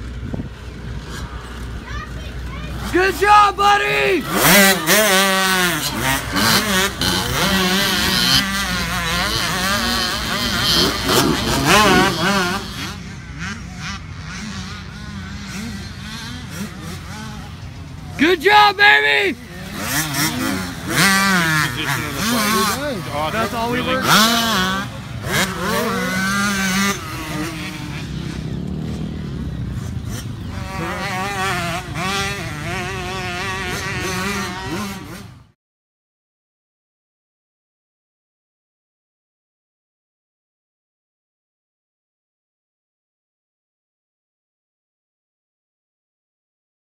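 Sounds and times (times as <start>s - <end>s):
dirt bike engines revving: 0.0s - 35.6s.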